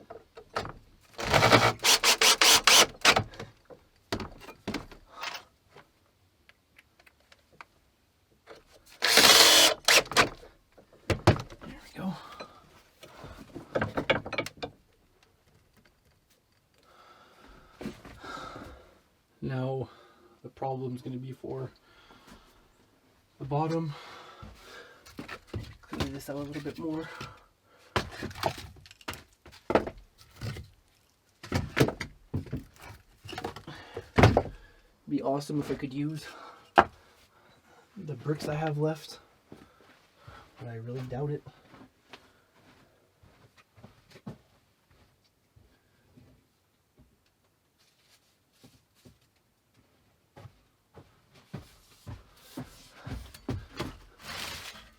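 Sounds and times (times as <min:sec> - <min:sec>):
power drill whirring: 0:01.2 - 0:03.2, 0:09.0 - 0:10.4
knocks and thuds: 0:11.1 - 0:11.8.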